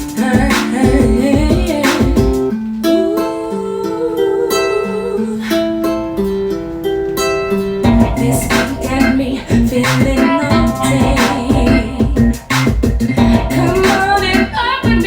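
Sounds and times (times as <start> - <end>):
drum hits: 0.0 - 2.5, 7.8 - 15.0
held keyboard notes: 0.0 - 15.0
plucked guitar: 0.0 - 15.0.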